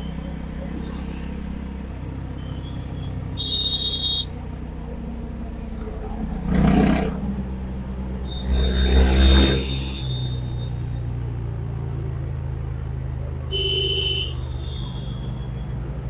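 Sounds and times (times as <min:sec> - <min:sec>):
motorcycle engine rumbling: 0:00.0 - 0:16.0
high whistle-like tone: 0:02.3 - 0:04.4, 0:08.2 - 0:10.9.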